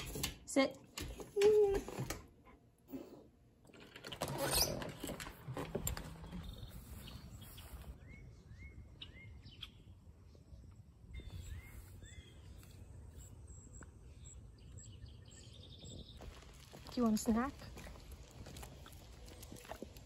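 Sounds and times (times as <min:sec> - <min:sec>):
faint outdoor background noise: 0:00.0 - 0:20.0
small bird chirping: 0:06.4 - 0:10.0, 0:11.1 - 0:16.7.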